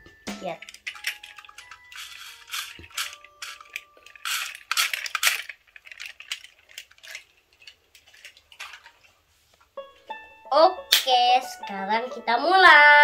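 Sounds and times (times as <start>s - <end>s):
plastic toy train cars clicking: 0.4s - 9.1s.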